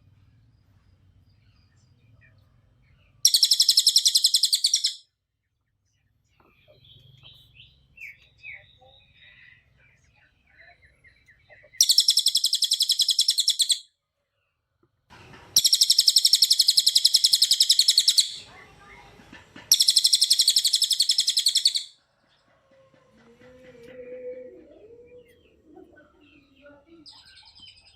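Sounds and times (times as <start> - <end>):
songbird chirps: 0.0 - 27.9
songbird rapid high trills: 3.3 - 5.0, 11.8 - 13.8, 15.6 - 18.5, 19.7 - 21.9.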